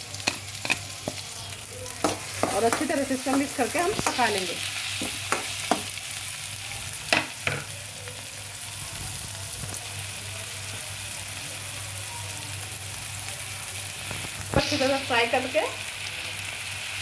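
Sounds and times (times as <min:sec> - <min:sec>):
vegetables sizzling in hot oil: 0:00.0 - 0:17.0
spatula tapping metal pan: 0:02.0 - 0:06.0.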